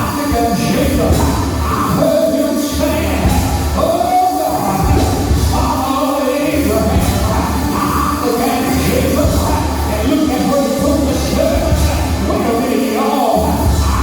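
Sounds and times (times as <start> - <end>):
band playing with bass line: 0.0 - 14.0
voices singing: 0.0 - 14.0.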